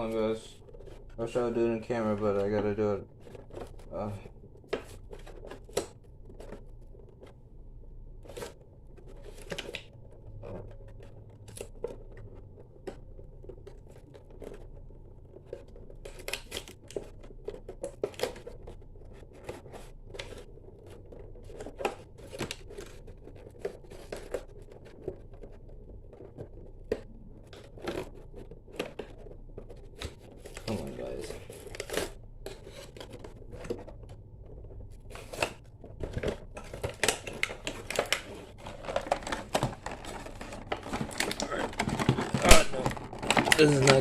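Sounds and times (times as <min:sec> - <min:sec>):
clicking of plastic packaging: 0:08.2 - 0:44.0
scratching of plastic packaging: 0:08.2 - 0:44.0
snipping of packaging: 0:15.4 - 0:25.5, 0:35.0 - 0:44.0.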